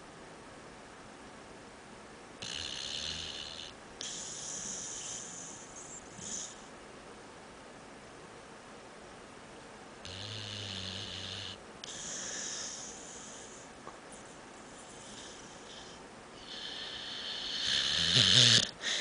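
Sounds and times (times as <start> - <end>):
dog snoring: 2.4 - 6.7, 10.0 - 13.6, 14.7 - 19.0.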